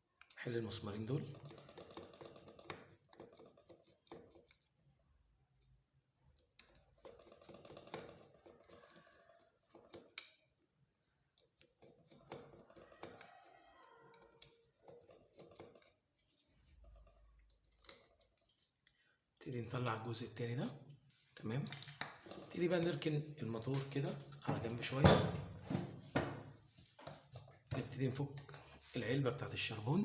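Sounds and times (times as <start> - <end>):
screwdriver clicking and scraping: 1.2 - 4.9, 5.5 - 10.5, 11.3 - 19.6, 21.1 - 22.9.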